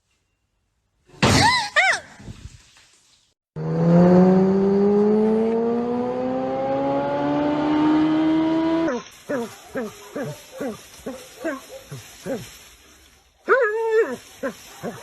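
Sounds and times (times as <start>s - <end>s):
motor-like sound rising in pitch: 3.6s - 8.9s.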